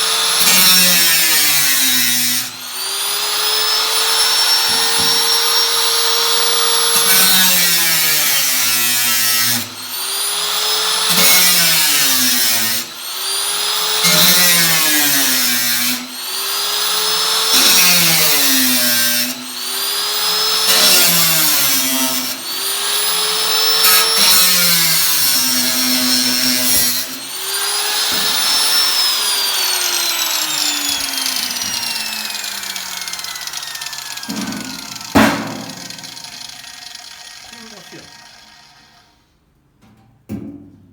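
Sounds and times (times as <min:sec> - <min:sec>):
power tool motor running: 0:00.0 - 0:39.3.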